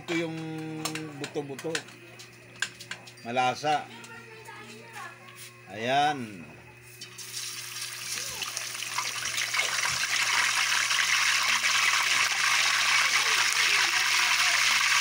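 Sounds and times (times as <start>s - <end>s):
bones sizzling in hot oil: 7.1s - 15.0s.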